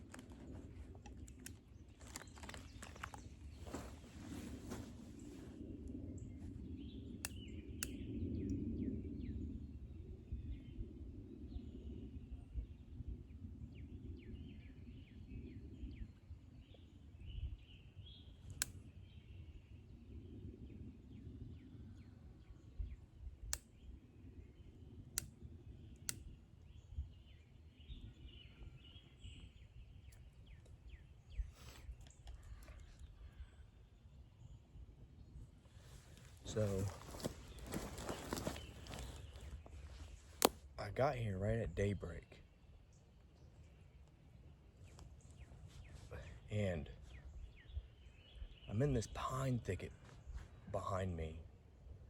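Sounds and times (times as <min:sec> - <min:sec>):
small birds chirping: 0:00.0 - 0:52.0
wind rumbling: 0:27.0 - 0:41.8.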